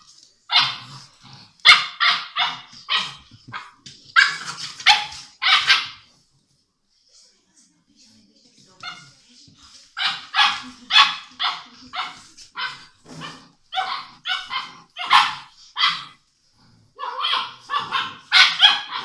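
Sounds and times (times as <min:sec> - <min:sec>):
puppy barking high-pitched yaps: 0:00.5 - 0:00.9, 0:01.6 - 0:06.0, 0:10.0 - 0:16.2, 0:17.0 - 0:19.0.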